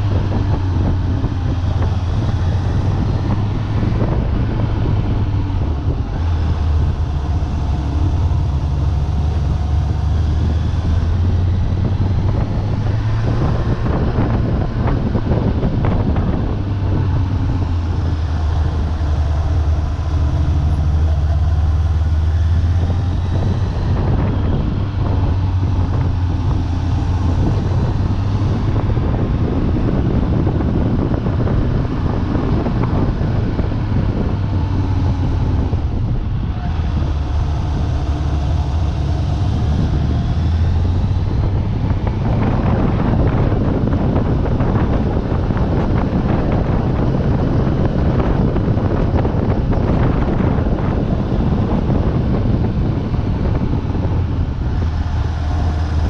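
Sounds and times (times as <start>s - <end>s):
motorcycle engine revving: 0.0s - 56.0s
wind buffeting microphone: 0.0s - 56.0s.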